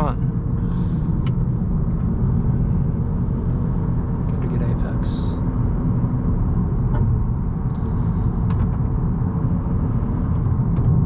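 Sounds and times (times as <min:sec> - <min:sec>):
tyre and road noise: 0:00.0 - 0:11.0.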